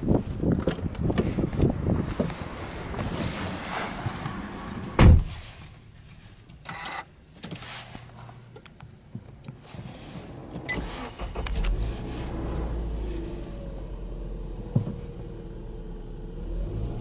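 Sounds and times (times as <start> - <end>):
heavy thump: 5.0 - 5.4
car engine starting and idling: 8.4 - 17.0.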